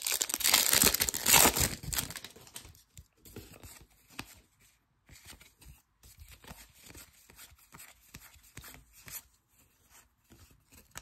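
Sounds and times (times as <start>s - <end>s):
foil wrapper rustling: 0.0s - 2.6s.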